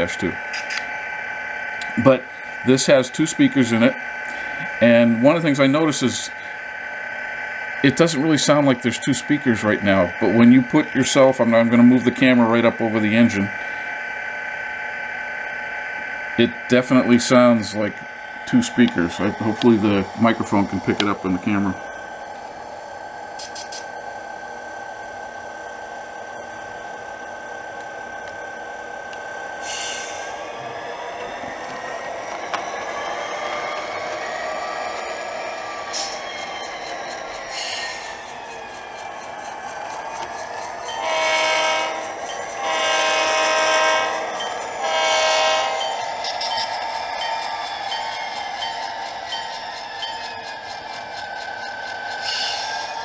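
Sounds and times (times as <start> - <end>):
model locomotive diesel idle hum: 0.0 - 53.0
model locomotive air horn chord: 40.8 - 46.1.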